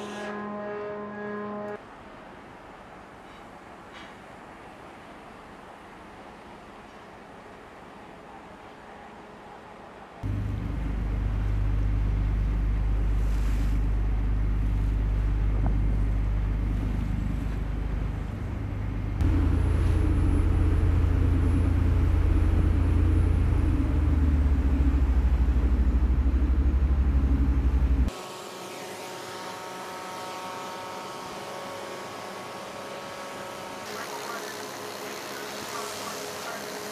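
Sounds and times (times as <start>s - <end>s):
machinery hum: 0.0s - 36.9s
high steady whines: 4.6s - 36.9s
heavy engines rumbling: 10.2s - 28.2s.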